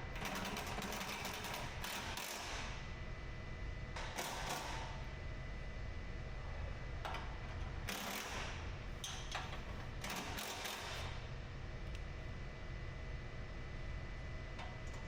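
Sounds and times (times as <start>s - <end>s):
steady low hum: 2.6s - 10.3s, 10.9s - 15.0s.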